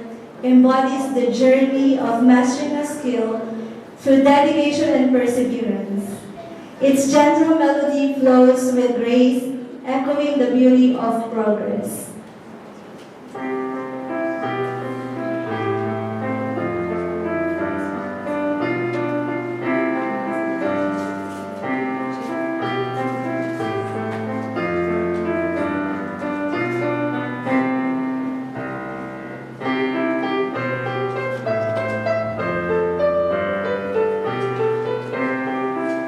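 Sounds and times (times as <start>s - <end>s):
solo piano melody: 12.1s - 36.0s.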